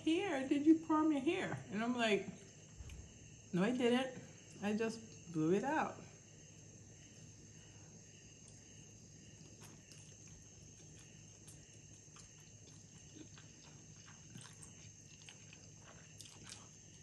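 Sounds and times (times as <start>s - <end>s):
low room hum: 0.0s - 17.0s
person slurping and chewing noodles: 9.4s - 17.0s.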